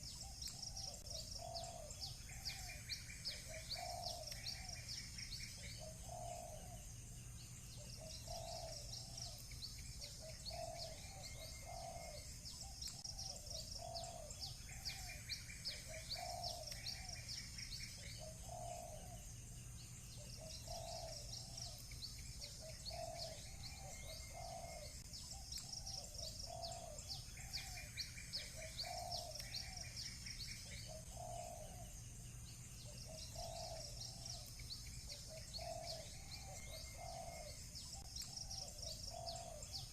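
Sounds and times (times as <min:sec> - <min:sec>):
doves cooing: 0:00.0 - 0:06.9, 0:07.7 - 0:19.3, 0:20.1 - 0:32.1, 0:32.8 - 0:39.9
bird trill: 0:00.0 - 0:39.9
small birds chirping: 0:00.0 - 0:39.9.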